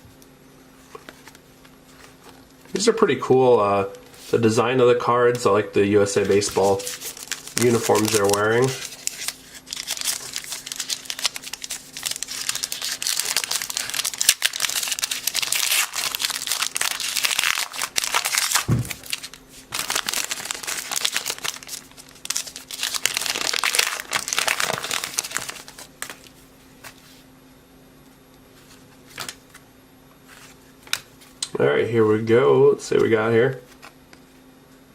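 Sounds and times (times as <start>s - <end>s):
wrapper crinkling and tearing: 6.2s - 26.3s.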